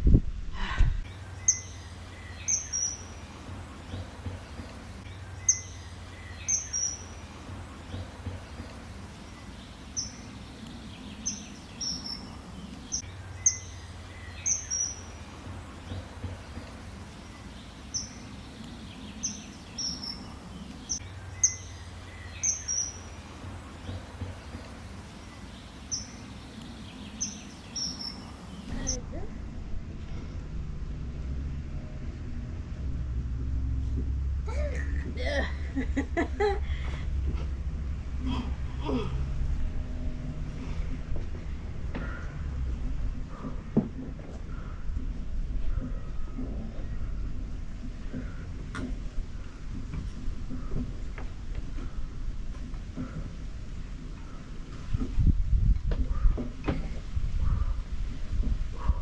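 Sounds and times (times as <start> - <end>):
bird chirping: 1.1 - 29.2.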